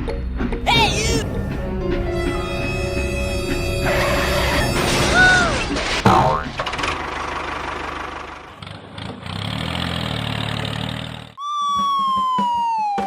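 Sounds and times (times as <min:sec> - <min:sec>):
descending whistle-like tone: 0:02.1 - 0:05.6
small engine running rough: 0:05.6 - 0:11.4.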